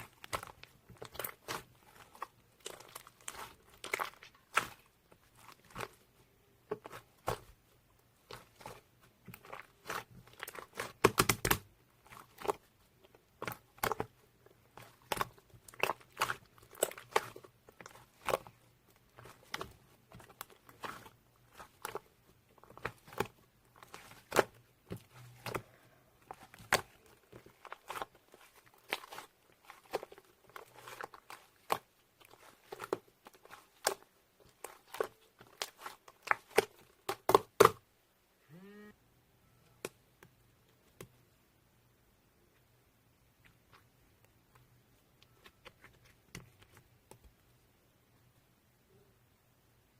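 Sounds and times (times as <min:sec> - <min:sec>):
slime squished with clicks and pops: 0:09.8 - 0:12.6.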